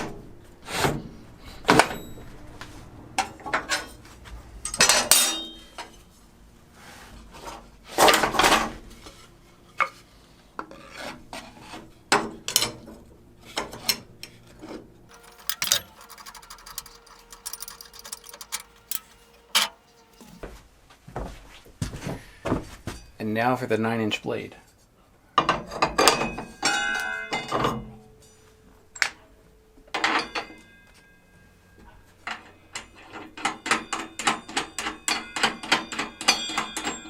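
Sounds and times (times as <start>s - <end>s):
knocks and clatters of parts: 15.1s - 20.5s.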